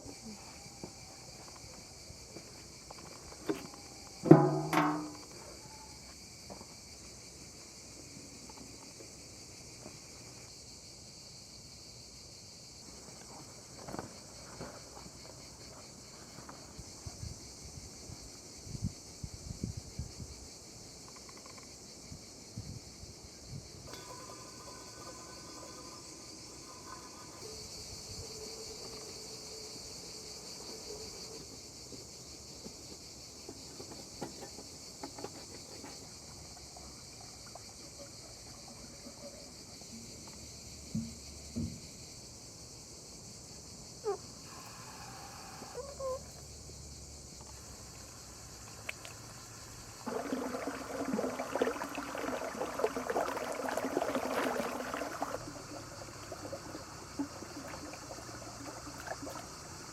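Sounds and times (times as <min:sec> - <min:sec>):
crickets chirping: 0:00.0 - 0:59.9
scattered knocks: 0:04.3 - 0:05.4
dense rustling and clattering: 0:33.4 - 0:36.6.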